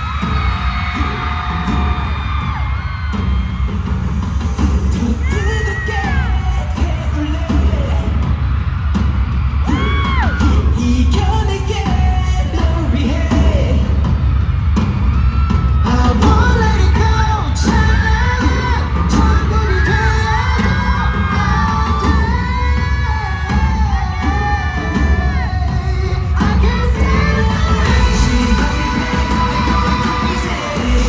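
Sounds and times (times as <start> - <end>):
bass-heavy backing track: 0.0 - 31.0
man singing: 4.6 - 8.5, 9.6 - 14.2, 15.7 - 31.0.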